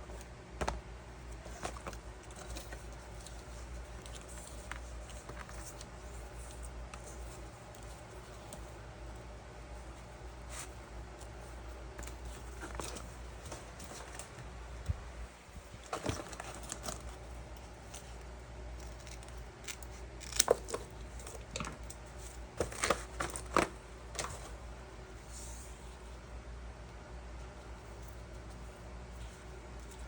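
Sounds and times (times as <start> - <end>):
low steady hum: 0.0 - 30.0
rustling: 0.2 - 21.3.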